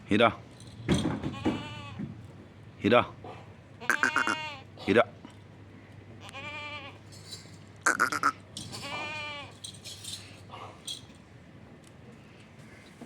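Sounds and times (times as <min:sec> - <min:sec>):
goats bleating: 0:01.3 - 0:02.0, 0:03.8 - 0:04.9, 0:06.2 - 0:07.1, 0:07.9 - 0:09.6.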